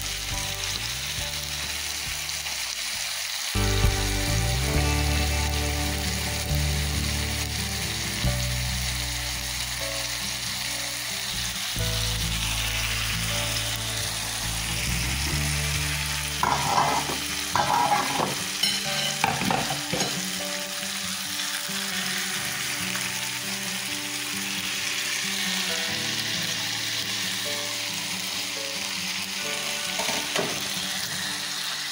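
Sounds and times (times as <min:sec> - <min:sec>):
vegetables sizzling in oil: 0:00.0 - 0:31.9
stirring and scraping in pan: 0:16.4 - 0:20.4.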